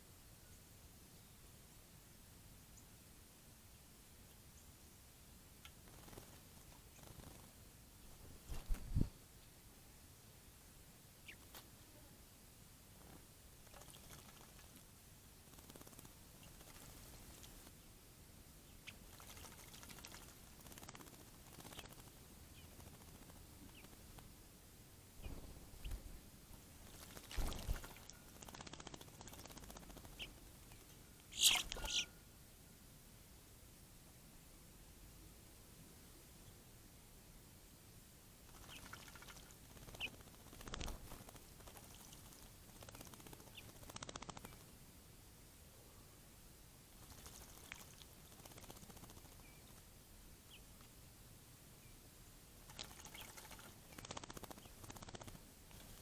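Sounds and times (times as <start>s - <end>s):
birds splashing water: 13.6s - 14.8s, 18.9s - 23.9s, 26.8s - 30.4s, 38.5s - 44.6s, 47.0s - 49.8s, 52.6s - 56.0s
faint short bird chirps: 31.3s - 32.2s.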